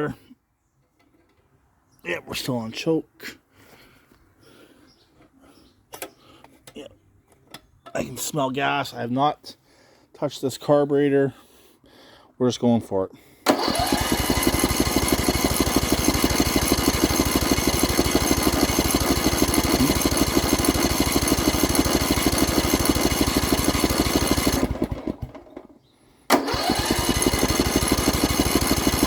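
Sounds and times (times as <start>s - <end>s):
mower engine cranking: 13.4s - 25.7s, 26.3s - 29.0s.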